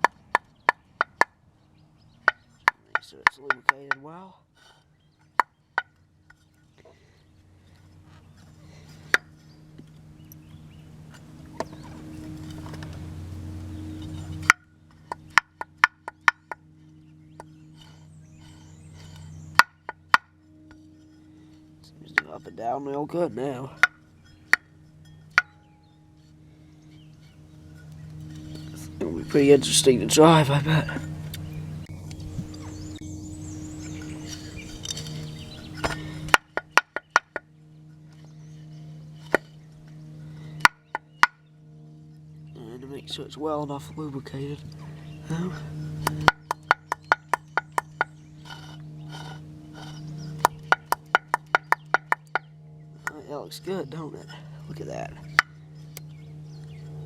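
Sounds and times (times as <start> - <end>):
steady low hum: 0.0 - 57.0
sharp metallic clicks and knocks: 2.2 - 4.1, 14.0 - 16.7, 46.0 - 53.2.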